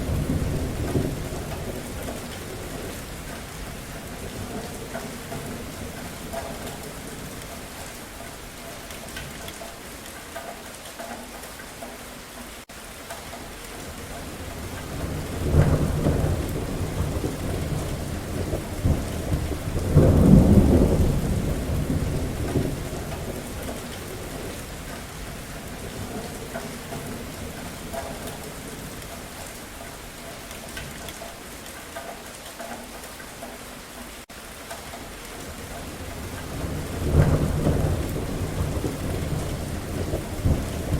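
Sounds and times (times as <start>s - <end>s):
thunder rolling: 0.0s - 7.4s, 13.9s - 29.0s, 35.5s - 40.9s
steady rain: 0.0s - 40.9s.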